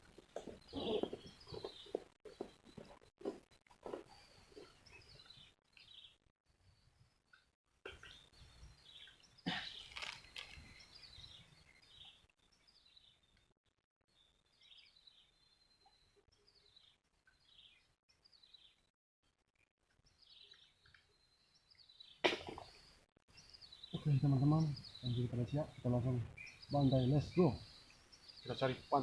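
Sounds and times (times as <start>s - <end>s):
bird chirping: 0.4s - 3.0s, 20.1s - 29.0s.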